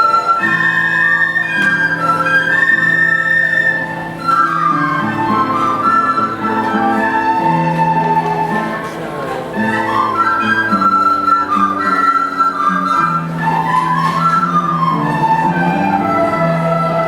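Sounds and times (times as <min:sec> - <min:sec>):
recorder ensemble playing melody: 0:00.0 - 0:17.0.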